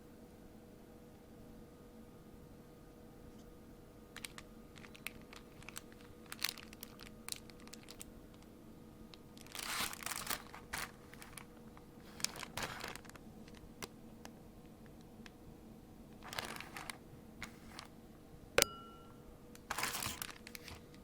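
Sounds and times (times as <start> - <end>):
packaging crinkling: 4.2 - 8.5, 9.2 - 15.0, 16.2 - 17.9, 19.6 - 21.0.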